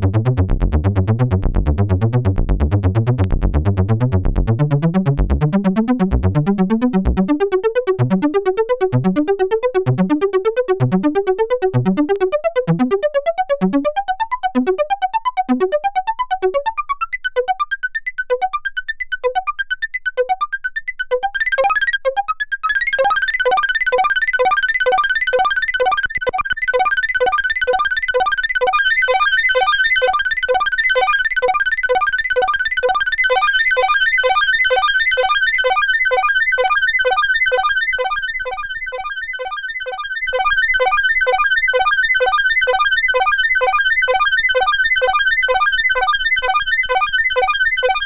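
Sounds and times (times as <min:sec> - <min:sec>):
synthesizer bass pattern: 0:28.7 - 0:30.2, 0:30.8 - 0:31.3, 0:33.2 - 0:35.6.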